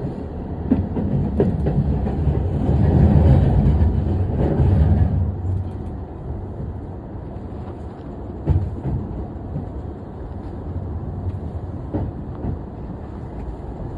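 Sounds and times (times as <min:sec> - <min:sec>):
wheels clunking over rail joints: 0:00.0 - 0:06.8
train rumbling: 0:00.0 - 0:13.9.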